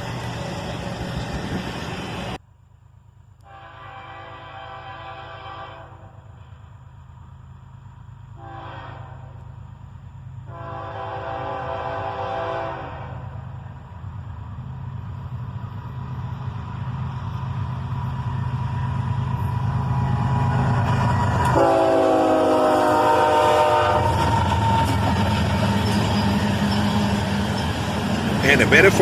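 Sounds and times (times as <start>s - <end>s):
diesel locomotive engines rumbling: 0.0s - 29.0s
train air horn: 3.4s - 6.4s, 8.4s - 9.5s, 10.5s - 13.5s, 21.4s - 24.8s.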